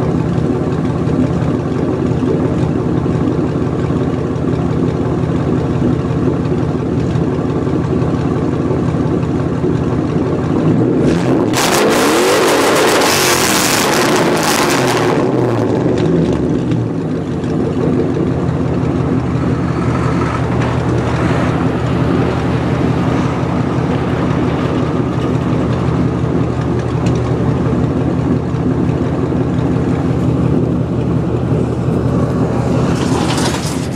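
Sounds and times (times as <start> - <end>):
loud open car exhaust drone: 0.0 - 33.9
car engine revving: 10.2 - 33.9.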